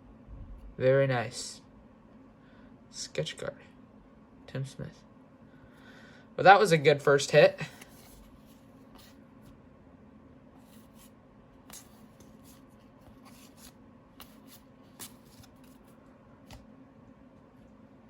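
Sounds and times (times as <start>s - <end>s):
cards rubbing and sliding: 7.8s - 9.2s, 10.6s - 16.6s.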